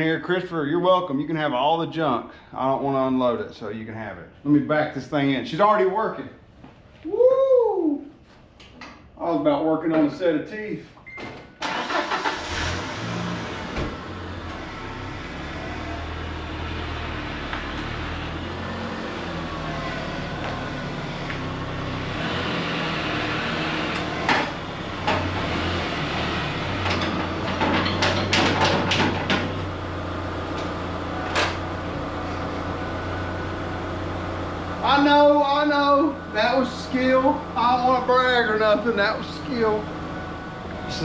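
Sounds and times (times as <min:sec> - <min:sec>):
truck engine running: 0:11.8 - 0:41.0
clunks and rattles: 0:24.0 - 0:25.6, 0:26.7 - 0:29.7.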